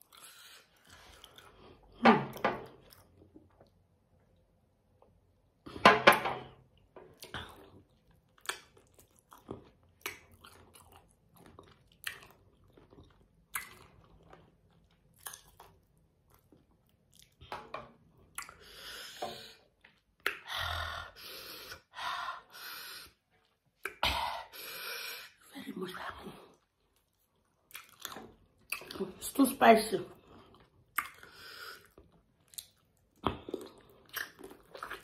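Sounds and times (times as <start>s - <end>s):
chewing and crunching: 0.0s - 2.0s, 6.8s - 17.5s, 26.4s - 29.2s, 30.1s - 35.0s.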